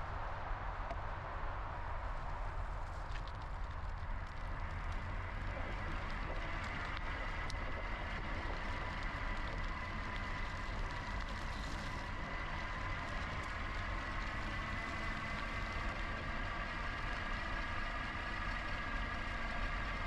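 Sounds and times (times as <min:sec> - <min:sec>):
wind and tyre rumble: 0:00.0 - 0:20.0.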